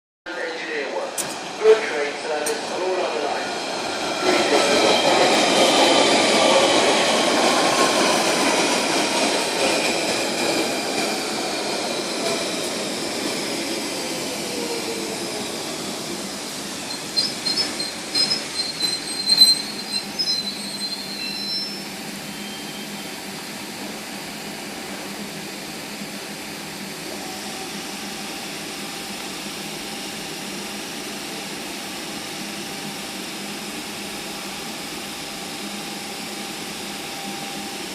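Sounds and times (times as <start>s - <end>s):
standing train hum: 0.3s - 37.9s
train motor whine: 8.1s - 24.0s
high brake squeals: 16.8s - 23.1s.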